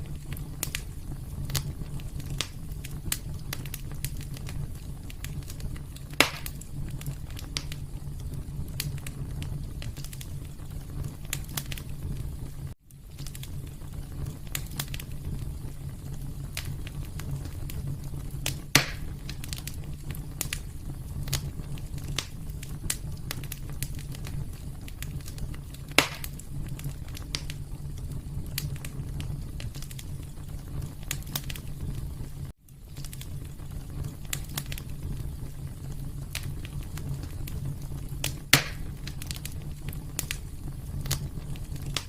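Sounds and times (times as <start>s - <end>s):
fire burning with crackles: 0.0s - 42.0s
loud fire pops: 0.0s - 42.0s.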